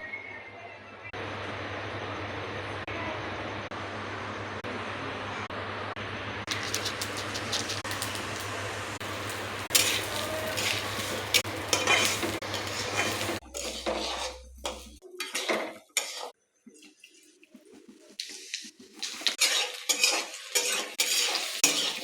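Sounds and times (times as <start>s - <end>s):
metal spoon scraping a pot: 6.5s - 16.4s, 18.2s - 22.0s.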